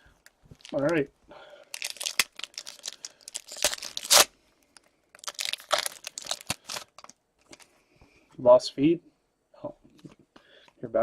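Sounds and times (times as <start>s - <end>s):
foil wrapper tearing and crinkling: 0.6s - 1.0s, 1.6s - 4.3s, 5.1s - 7.2s.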